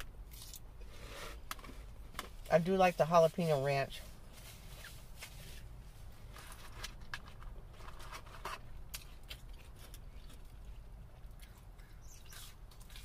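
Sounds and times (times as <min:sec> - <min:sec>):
chewing and mouth clicks: 0:08.9 - 0:13.0.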